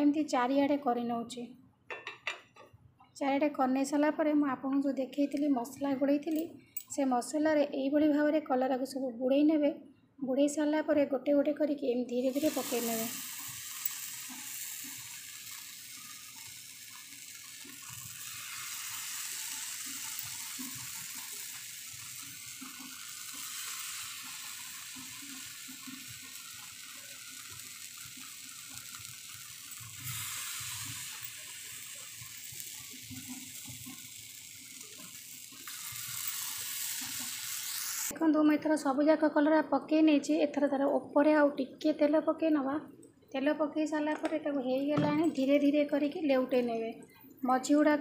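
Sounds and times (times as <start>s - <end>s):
food sizzling in oil: 12.1s - 38.2s.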